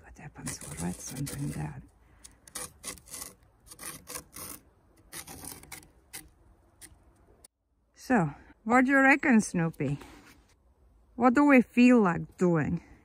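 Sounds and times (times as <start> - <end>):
stick scratching in snow: 0.2 - 7.0.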